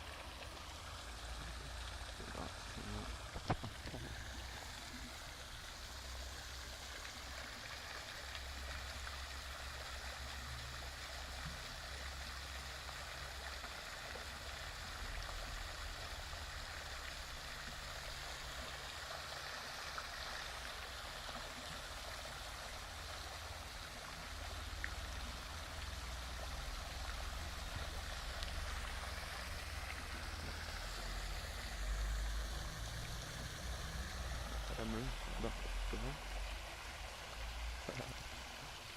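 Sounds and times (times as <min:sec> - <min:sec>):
water running: 0:22.3 - 0:38.9.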